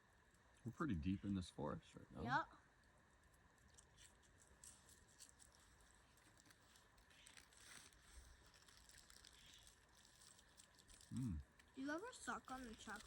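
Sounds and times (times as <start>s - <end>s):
soft rustle: 3.2s - 13.0s.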